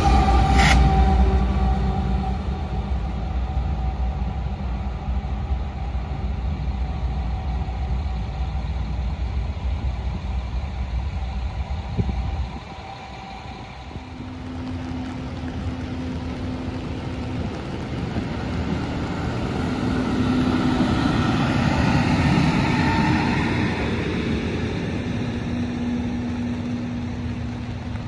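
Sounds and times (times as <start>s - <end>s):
freight train rumbling: 0.0s - 28.0s.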